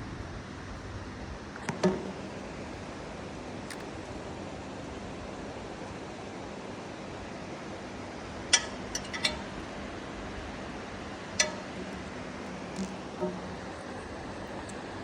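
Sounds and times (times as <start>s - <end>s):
sharp ringing clicks: 8.5s - 9.7s, 11.3s - 13.8s.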